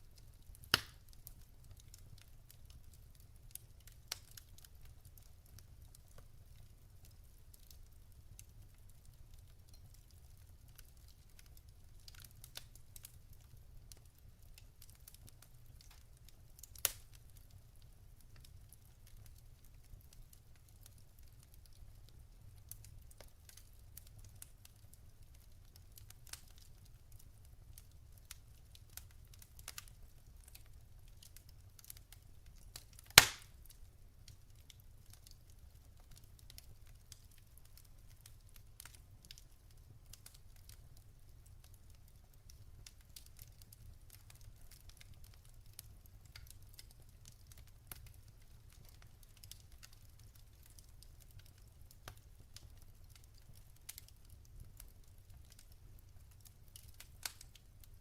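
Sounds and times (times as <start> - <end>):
wood fire crackling: 0.0 - 58.0
sharp pop of fire: 0.7 - 1.0, 33.2 - 33.5.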